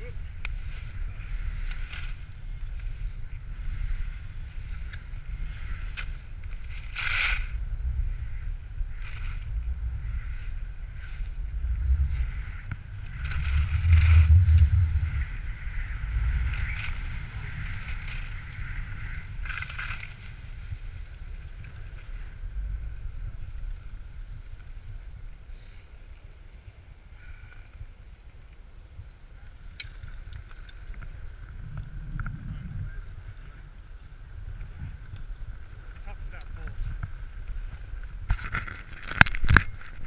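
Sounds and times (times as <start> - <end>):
wind rumbling on microphone: 0.0 - 40.0
skis hissing over snow: 0.6 - 7.6.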